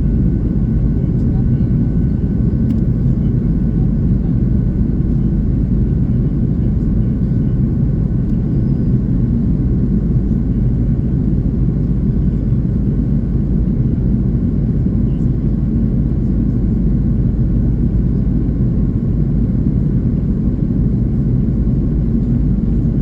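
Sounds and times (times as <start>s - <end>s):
faint steady whine: 0.0s - 4.4s
airplane cabin roar: 0.0s - 23.0s.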